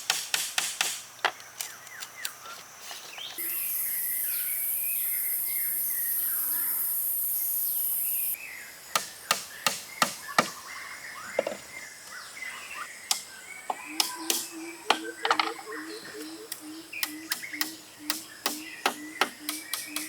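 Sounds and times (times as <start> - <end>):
high insect drone: 1.0 - 8.8
birds chirping: 1.3 - 20.0.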